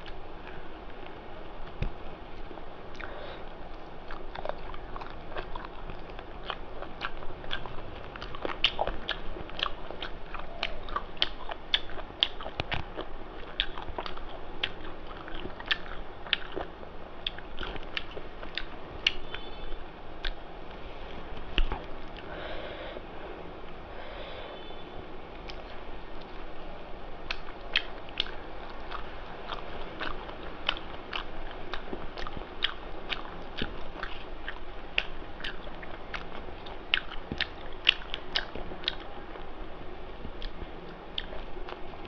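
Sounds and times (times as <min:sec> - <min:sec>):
chewing and lip-smacking: 0:00.0 - 0:20.8, 0:21.4 - 0:22.3, 0:25.4 - 0:26.5, 0:27.2 - 0:39.6, 0:40.2 - 0:42.0.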